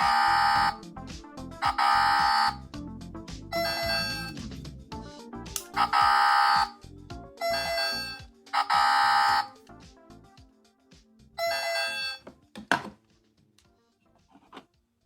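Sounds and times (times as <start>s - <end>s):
electronic buzzer tones: 0.0s - 0.8s, 1.6s - 2.6s, 3.6s - 4.3s, 5.8s - 6.8s, 7.4s - 9.5s, 11.4s - 12.2s.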